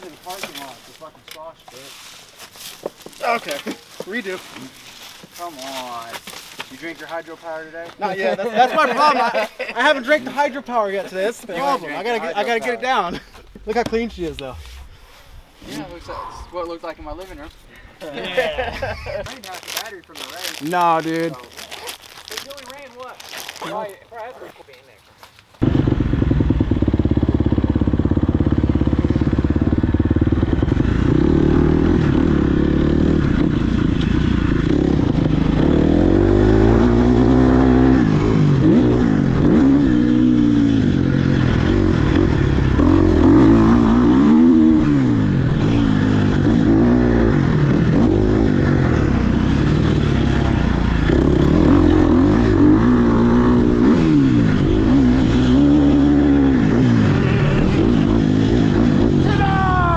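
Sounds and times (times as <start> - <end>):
dirt bike engine revving: 25.6 - 59.9.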